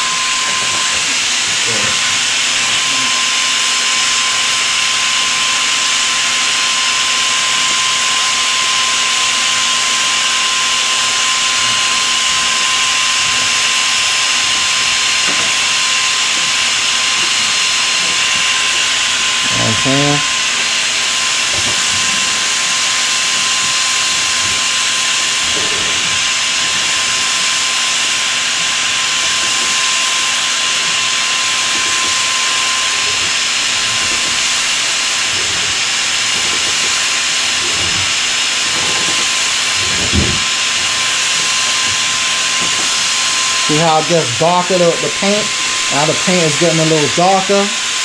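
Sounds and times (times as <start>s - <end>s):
motor whine: 0.0s - 48.0s
thump: 40.1s - 40.4s.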